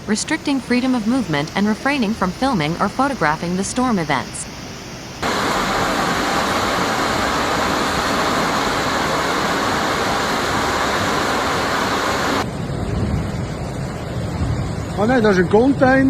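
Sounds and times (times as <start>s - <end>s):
river water rushing: 5.2s - 12.4s.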